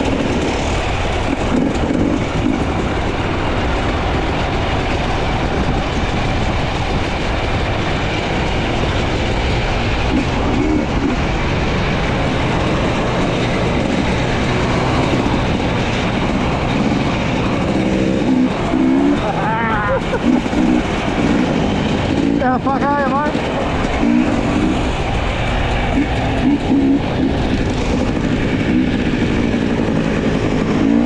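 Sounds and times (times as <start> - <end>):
dirt bike engine: 0.0 - 31.0
rattle of riding over rough ground: 0.0 - 31.0.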